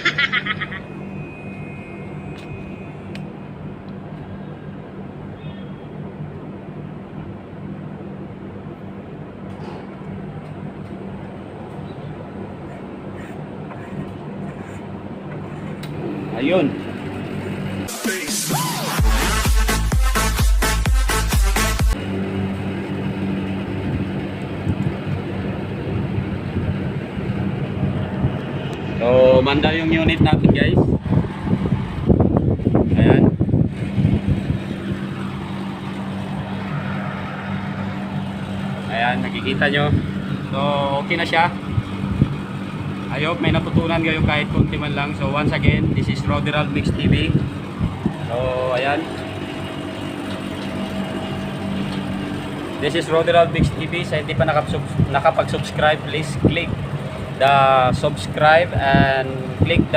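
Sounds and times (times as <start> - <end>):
air conditioner unit humming: 0.0 - 17.9, 22.0 - 59.9
dance music: 17.9 - 22.0.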